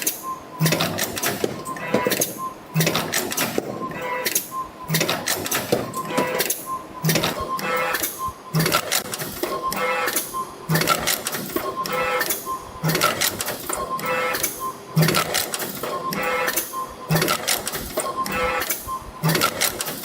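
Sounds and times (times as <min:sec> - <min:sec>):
spring machine clattering and clicking: 0:00.0 - 0:20.0.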